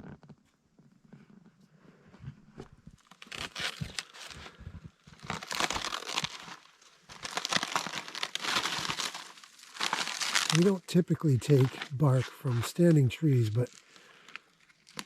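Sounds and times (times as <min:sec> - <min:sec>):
bark tearing and peeling: 0:03.0 - 0:10.8, 0:14.7 - 0:15.0.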